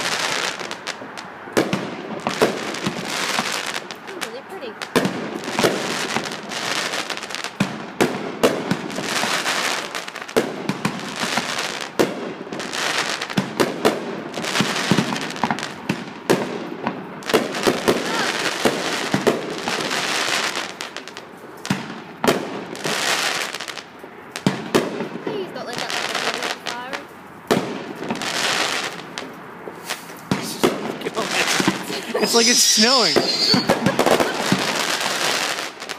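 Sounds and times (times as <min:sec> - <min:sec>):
fireworks bangs and pops: 0:00.0 - 0:35.9
fireworks hiss: 0:29.7 - 0:35.9.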